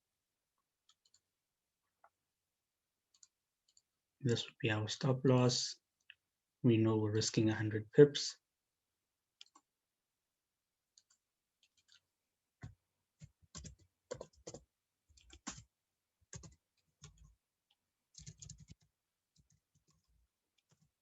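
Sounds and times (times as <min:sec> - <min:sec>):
computer mouse and keyboard clicking: 0:11.0 - 0:12.0, 0:13.2 - 0:15.6, 0:18.2 - 0:20.9.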